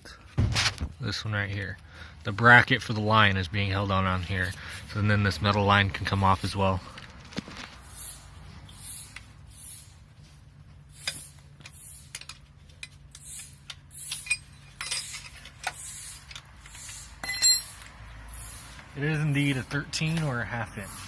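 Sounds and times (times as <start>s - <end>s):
sharp metallic clink: 17.0s - 17.9s.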